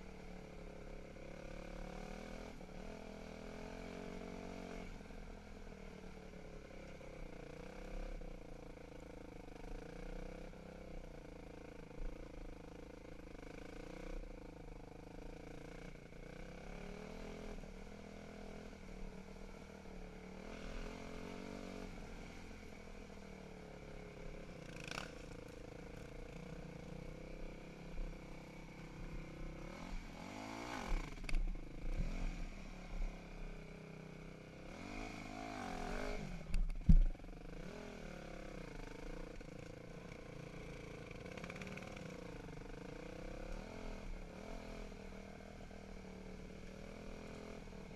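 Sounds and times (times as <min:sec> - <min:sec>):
dirt bike engine revving: 0:34.6 - 0:36.4.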